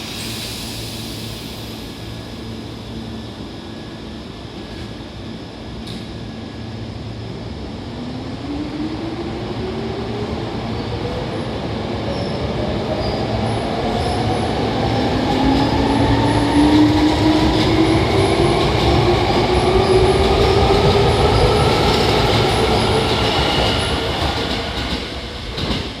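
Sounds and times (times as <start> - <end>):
train wheels rumbling: 9.6 - 26.0.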